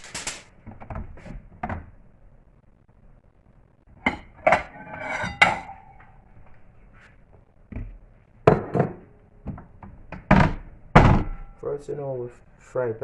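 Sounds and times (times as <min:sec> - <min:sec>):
metal pots and utensils clanking: 0:04.0 - 0:06.0.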